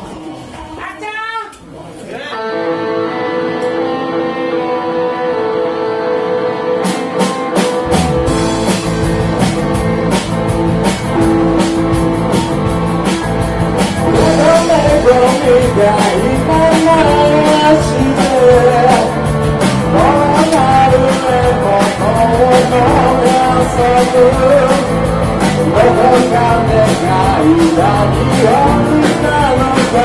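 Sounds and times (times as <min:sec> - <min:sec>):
bass guitar: 0:02.3 - 0:30.0
guitar chords: 0:02.3 - 0:30.0
lead melody: 0:02.4 - 0:30.0
drum kit: 0:06.3 - 0:30.0.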